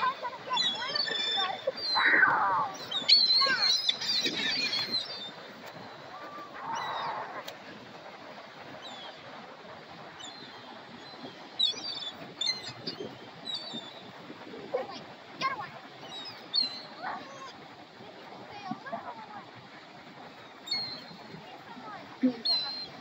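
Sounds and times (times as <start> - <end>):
seagulls squawking: 0.0 - 7.5, 10.2 - 14.0, 22.3 - 23.0.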